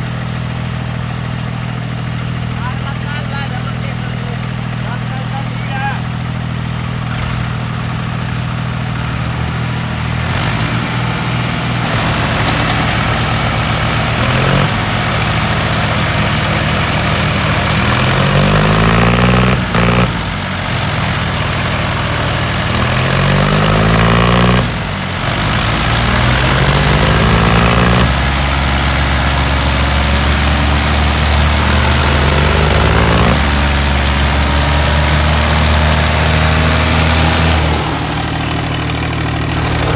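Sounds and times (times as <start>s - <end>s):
tractor diesel engine revving: 0.0s - 39.9s.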